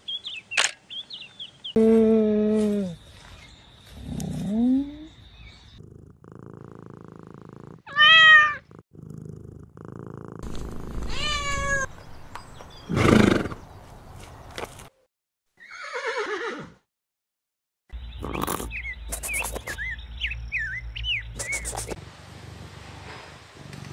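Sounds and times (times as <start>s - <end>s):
cat meowing: 7.9s - 8.7s, 11.1s - 11.9s
horse whinny: 15.6s - 16.8s.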